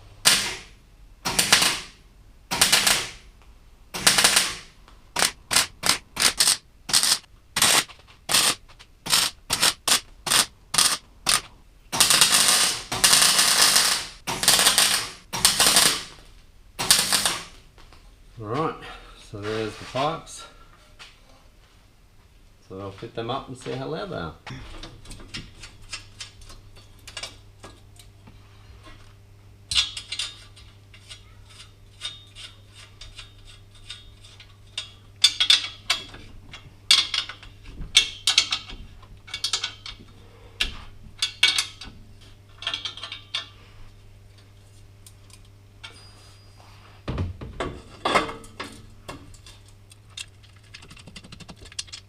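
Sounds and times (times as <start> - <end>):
low steady hum: 0.0 - 52.0
metal clanks of exhaust pipes: 42.6 - 43.6.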